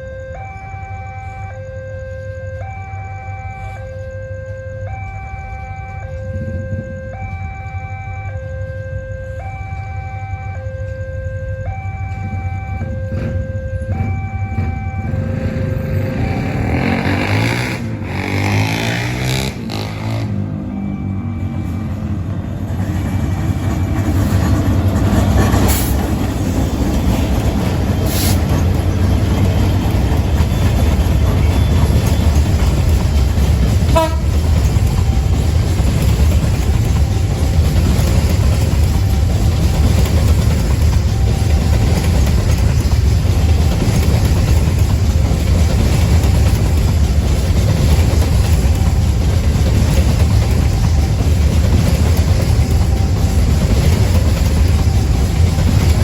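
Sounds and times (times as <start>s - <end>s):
train wagons rumbling on rails: 0.0s - 56.0s.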